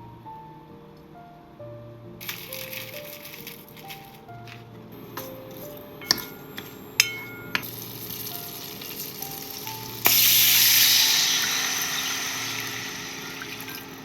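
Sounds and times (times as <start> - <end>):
utensils clinking: 2.2 - 10.2
sizzling in a frying pan: 7.4 - 14.0.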